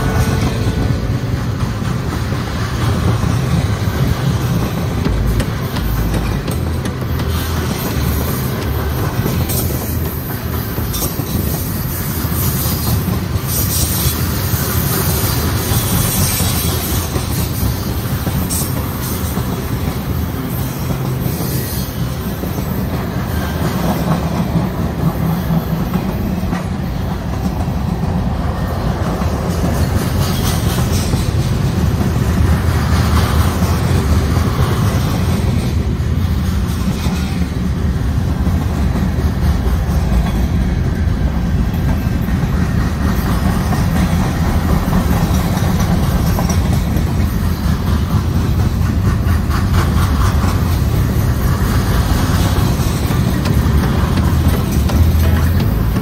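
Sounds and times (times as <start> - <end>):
freight train wheels rumbling: 0.0 - 56.0
wheels clicking over rail joints: 0.0 - 56.0.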